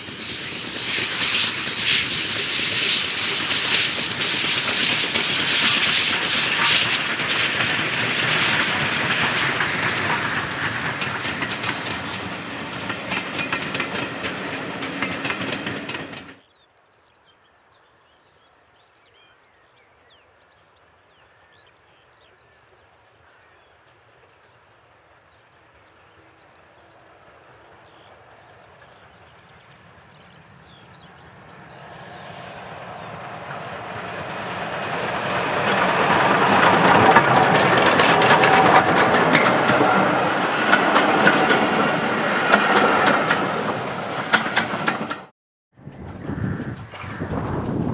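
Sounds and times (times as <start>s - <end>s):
train approaching: 0.0s - 16.4s, 25.6s - 47.9s
train wheels clattering over rail joints: 0.0s - 16.4s, 31.8s - 45.3s.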